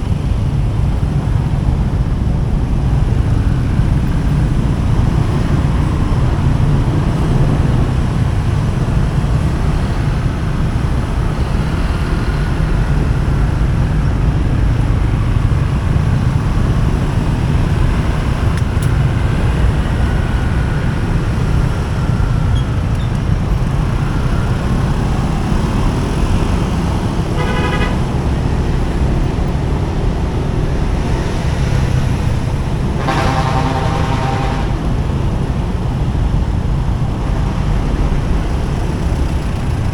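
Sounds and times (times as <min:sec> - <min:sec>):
motorcycle riding in traffic: 0:00.0 - 0:39.9
vehicle horn honking: 0:27.2 - 0:28.3, 0:32.8 - 0:35.1.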